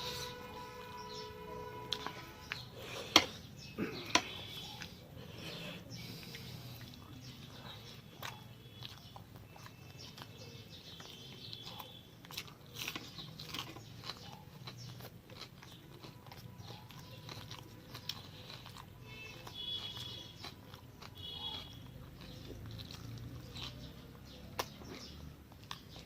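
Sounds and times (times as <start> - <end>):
person chewing food: 0.0 - 26.0.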